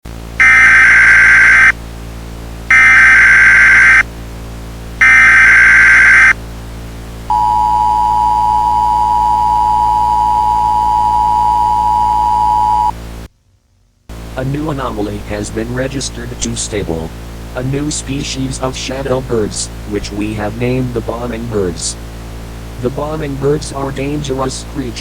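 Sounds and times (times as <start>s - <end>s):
low steady hum: 0.1s - 25.0s
harsh digital data bursts: 0.4s - 1.7s, 2.7s - 4.0s, 5.0s - 6.3s
two-tone attention signal: 0.4s - 1.7s, 2.7s - 4.0s, 5.0s - 6.3s, 7.3s - 12.9s.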